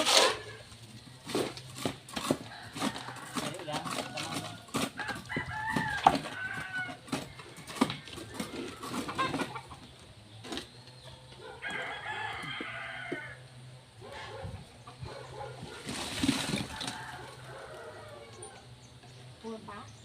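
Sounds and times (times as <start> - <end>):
rooster crowing: 2.4 - 8.7, 11.5 - 13.5, 16.5 - 18.6.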